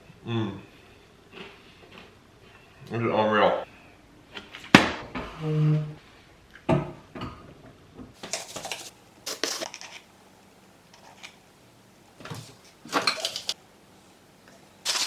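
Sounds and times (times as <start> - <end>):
person humming mmm: 5.4 - 6.0
cereal crunching: 8.2 - 10.1.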